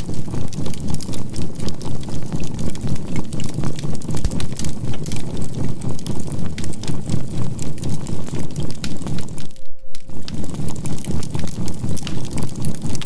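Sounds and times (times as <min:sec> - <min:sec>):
charcoal fire crackling: 0:00.0 - 0:13.0
pulsing synthesized humming tone: 0:08.4 - 0:13.0.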